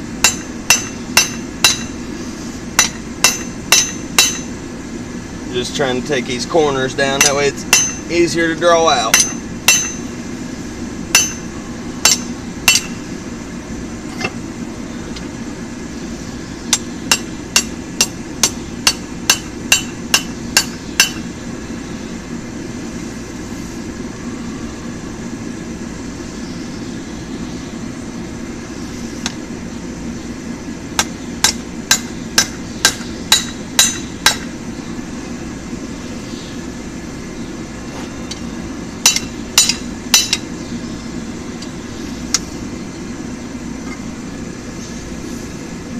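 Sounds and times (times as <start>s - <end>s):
steady low rush: 0.0s - 45.9s
hammer ringing on anvil: 0.2s - 1.9s, 2.8s - 4.5s, 7.2s - 8.1s, 9.1s - 10.1s, 11.1s - 13.0s, 16.7s - 21.2s, 31.4s - 34.5s, 39.0s - 40.4s.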